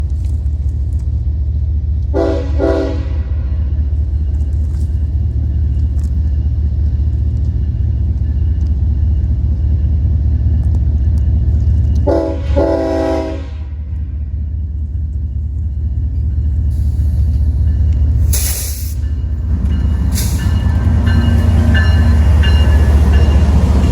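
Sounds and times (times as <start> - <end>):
train rumbling: 0.0 - 23.9
locomotive air horn blasts: 2.1 - 3.5, 12.1 - 13.9.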